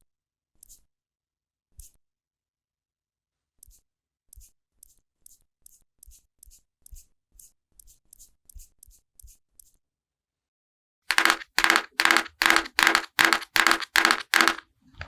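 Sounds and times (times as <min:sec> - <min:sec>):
soft tapping of makeup applicator: 0:11.1 - 0:14.6.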